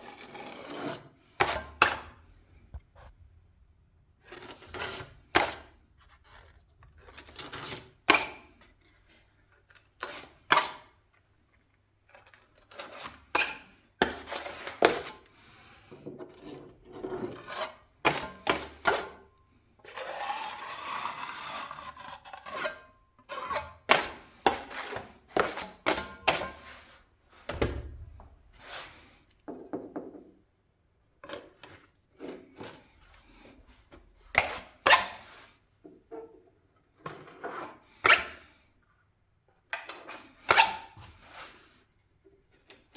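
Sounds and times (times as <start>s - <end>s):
tool scraping: 12.1s - 29.3s, 31.3s - 35.6s, 39.9s - 41.7s.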